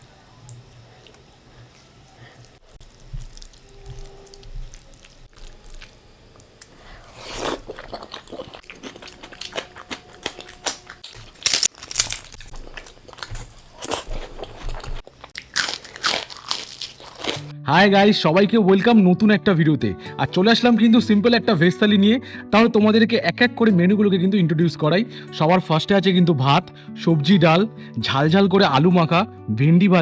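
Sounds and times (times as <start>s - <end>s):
chewing crisp fried food: 0.5s - 17.5s.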